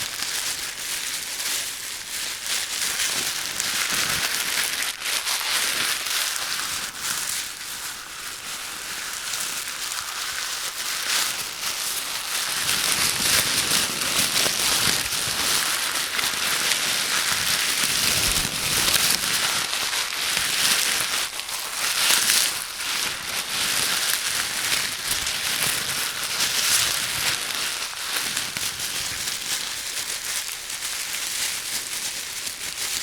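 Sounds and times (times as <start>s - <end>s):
patter of tiny crackles: 0.0s - 33.0s.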